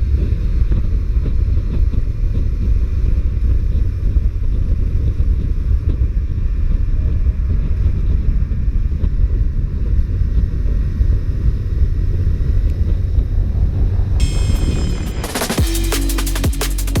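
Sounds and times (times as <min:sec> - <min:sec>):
electronic music: 0:14.2 - 0:17.0.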